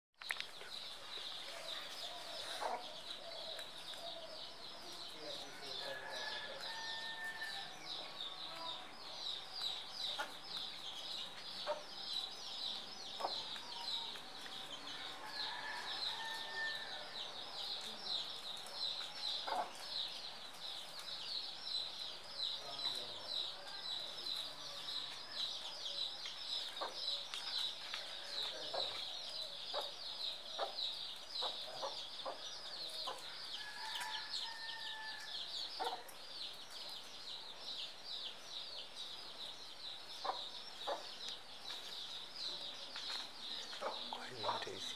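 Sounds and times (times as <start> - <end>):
small birds chirping: 0.2 - 44.9.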